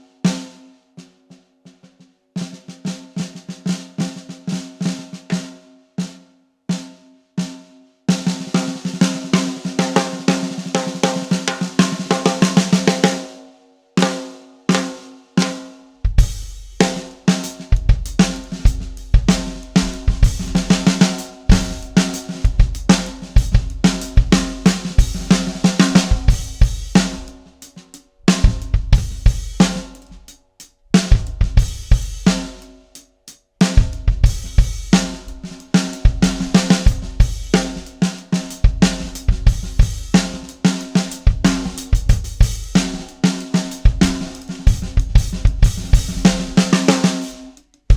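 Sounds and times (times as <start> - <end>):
snare drum: 8.1 - 13.3, 14.0 - 30.4, 31.0 - 32.7, 33.6 - 47.9
cymbals: 16.2 - 30.3, 33.7 - 47.6
kick drum: 28.4 - 29.3.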